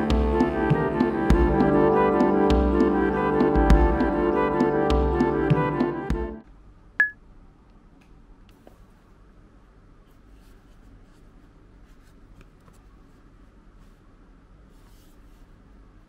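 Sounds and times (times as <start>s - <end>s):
background music: 0.0s - 6.4s.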